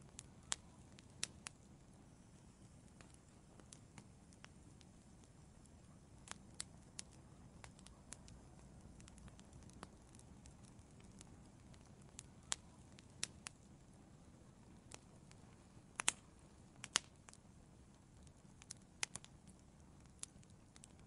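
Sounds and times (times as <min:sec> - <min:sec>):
faint low hiss: 0:00.0 - 0:21.0
wood fire crackling: 0:00.0 - 0:21.0
sharp pops: 0:16.0 - 0:17.1.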